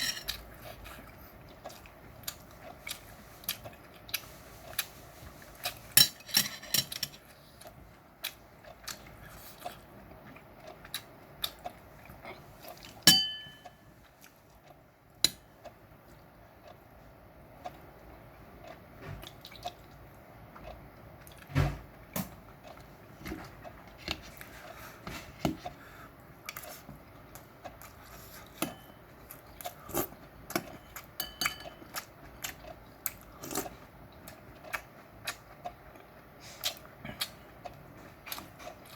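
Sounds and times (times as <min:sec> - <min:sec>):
cutlery clinking against dish: 0:00.0 - 0:00.4, 0:06.0 - 0:07.2, 0:13.1 - 0:13.8, 0:30.7 - 0:31.9
chewing with wet mouth smacks: 0:00.4 - 0:05.0, 0:07.4 - 0:13.0, 0:18.6 - 0:21.5, 0:31.8 - 0:38.9.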